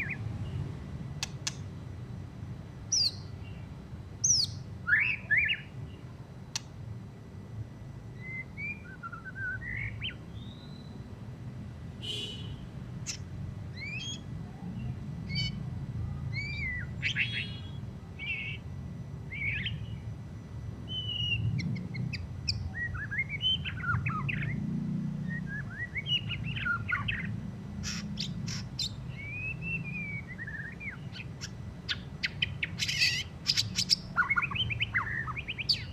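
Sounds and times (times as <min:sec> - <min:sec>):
low steady hum: 0:00.0 - 0:35.9
bird singing whistled phrases: 0:04.3 - 0:05.7, 0:08.2 - 0:11.0, 0:13.8 - 0:14.2, 0:16.3 - 0:18.6, 0:20.9 - 0:21.6, 0:22.5 - 0:24.6, 0:25.2 - 0:27.3, 0:28.2 - 0:35.9.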